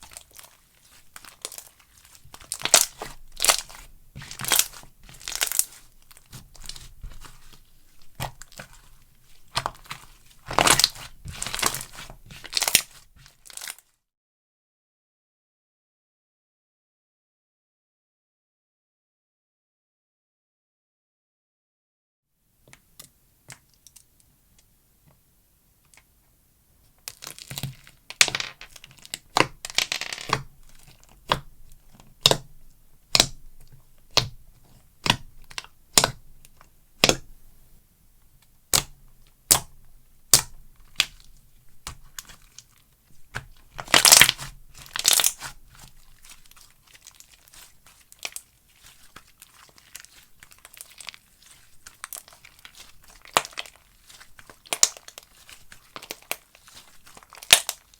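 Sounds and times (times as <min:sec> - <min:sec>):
slime crackly tearing: 0:00.0 - 0:13.8, 0:43.6 - 0:57.9
slime wet pops: 0:33.1 - 0:33.4, 0:35.0 - 0:36.2, 0:37.0 - 0:37.3, 0:38.7 - 0:41.2.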